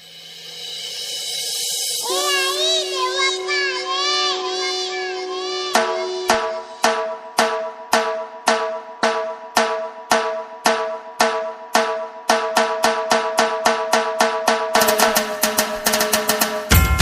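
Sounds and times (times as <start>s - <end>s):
sustained ringing tone: 1.4s - 7.0s
melodic tune: 2.0s - 6.9s
dhol drum beat: 5.7s - 17.0s.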